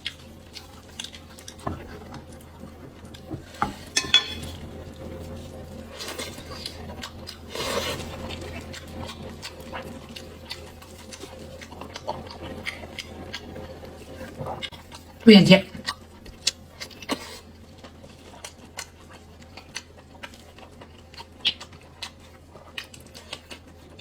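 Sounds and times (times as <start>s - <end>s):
chewing and mouth clicks: 0.0s - 2.4s, 6.0s - 15.2s, 15.8s - 24.0s
dishes clattering: 3.4s - 4.7s.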